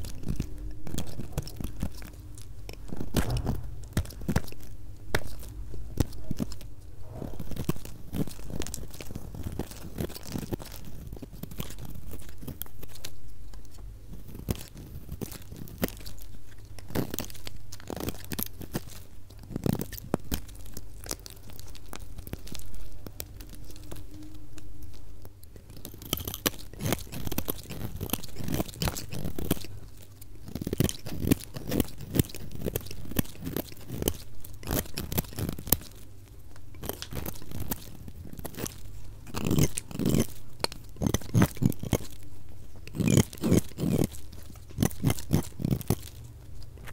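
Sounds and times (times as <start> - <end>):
knife crunching through soap: 7.4 - 46.9.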